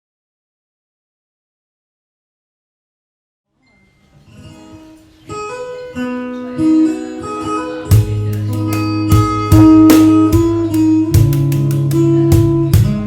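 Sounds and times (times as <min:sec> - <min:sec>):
acoustic guitar playing: 0:03.6 - 0:13.0.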